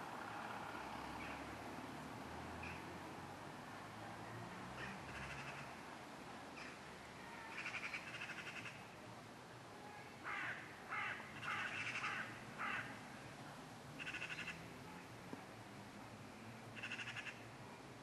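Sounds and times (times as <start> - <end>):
bird harsh rasping calls: 10.3 - 12.9, 14.0 - 14.6, 16.8 - 17.4.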